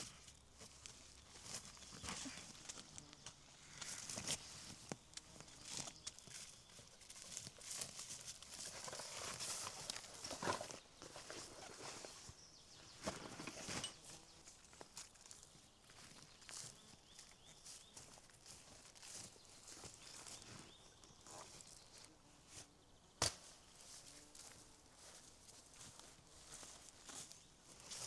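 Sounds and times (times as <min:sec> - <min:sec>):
footsteps crunching through leaf litter: 0:03.8 - 0:12.4, 0:14.0 - 0:22.0, 0:23.3 - 0:28.0
twigs snapping: 0:23.2 - 0:23.6.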